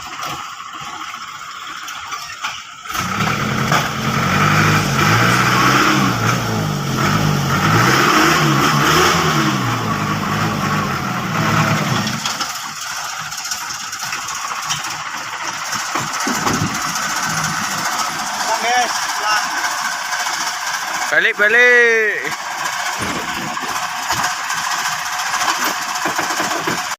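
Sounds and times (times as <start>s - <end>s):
dump truck engine revving: 2.9s - 26.9s.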